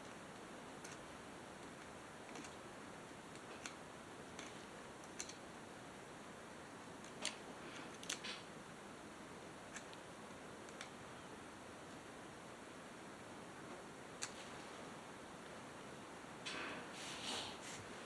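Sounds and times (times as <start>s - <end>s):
steady hiss: 14.2s - 18.0s.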